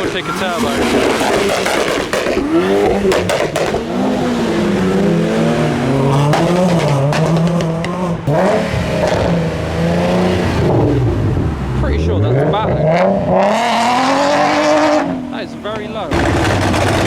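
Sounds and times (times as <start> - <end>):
car engine revving: 0.0 - 17.0
sharp cracks: 1.0 - 3.8, 16.1 - 17.0.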